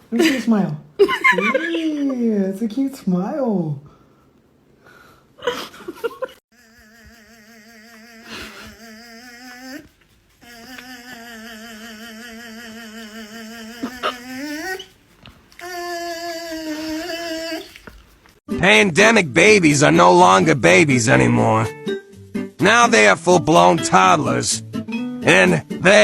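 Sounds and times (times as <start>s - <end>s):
dog howling: 13.8s - 15.0s, 15.6s - 17.8s.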